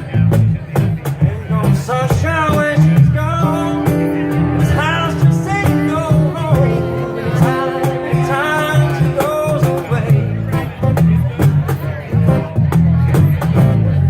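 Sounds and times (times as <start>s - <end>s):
strummed guitar: 0.0s - 14.0s
person singing: 1.5s - 10.7s.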